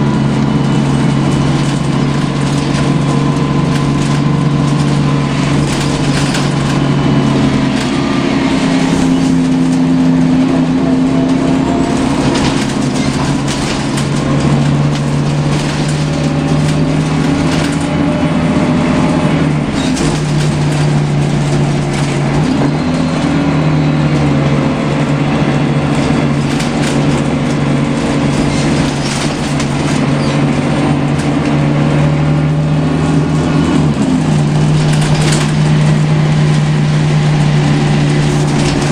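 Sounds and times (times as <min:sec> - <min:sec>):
bus engine drone with whine: 0:00.0 - 0:38.9
road noise: 0:00.0 - 0:38.9
body rattles: 0:00.7 - 0:07.0, 0:11.6 - 0:18.0, 0:19.6 - 0:22.8, 0:25.9 - 0:31.4, 0:34.2 - 0:37.0.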